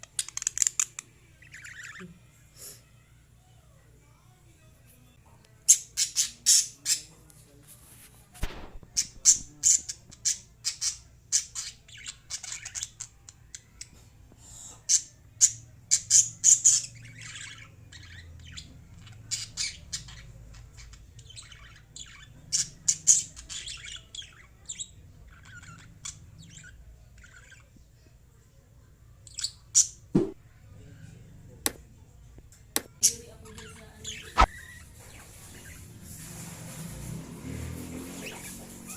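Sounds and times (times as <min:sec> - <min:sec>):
lovebirds chirping and squawking: 0:00.0 - 0:02.3, 0:05.6 - 0:07.2, 0:08.6 - 0:28.0, 0:29.2 - 0:30.1, 0:32.9 - 0:37.0, 0:37.8 - 0:38.9.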